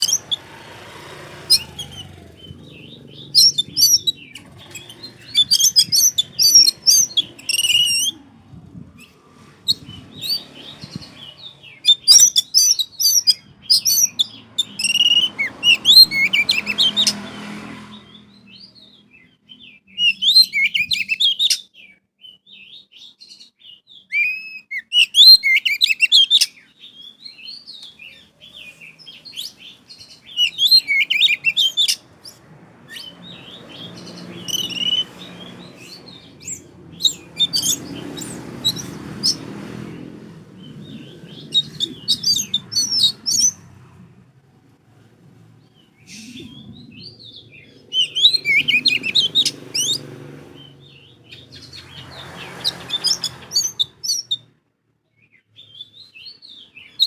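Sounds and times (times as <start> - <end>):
bird singing whistles and trills: 1.5 - 17.2, 18.0 - 39.4, 40.6 - 43.6, 46.0 - 50.0.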